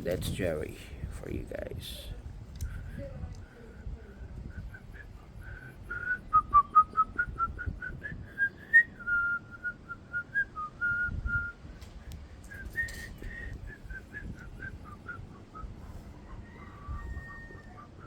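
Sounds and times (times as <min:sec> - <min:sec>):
short whistled notes: 0:12.5 - 0:15.7.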